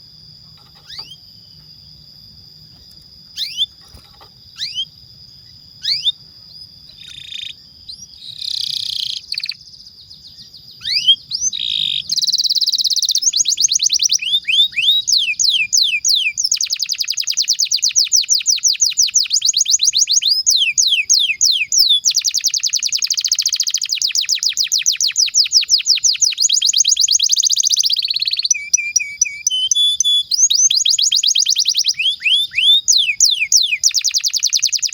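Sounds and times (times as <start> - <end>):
canary fast rolling trill: 0.6 - 1.2
canary chirping: 0.8 - 1.2, 3.4 - 6.2, 6.9 - 9.7, 10.8 - 34.9.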